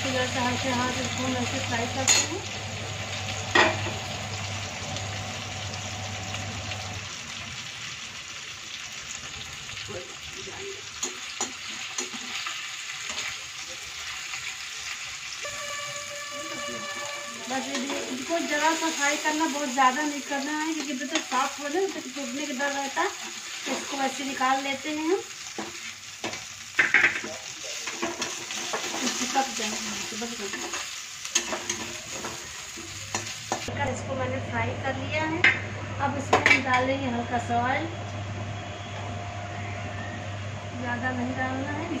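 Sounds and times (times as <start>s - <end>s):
pasta sizzling in a pan: 0.0s - 35.0s
metal spoon scraping a pan: 16.5s - 19.3s, 26.8s - 33.7s.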